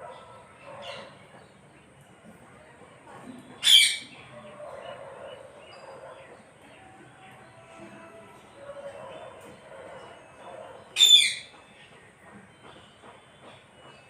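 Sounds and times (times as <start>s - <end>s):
parrot calling: 3.6s - 4.2s, 11.0s - 11.5s
parrot chattering: 11.0s - 11.5s.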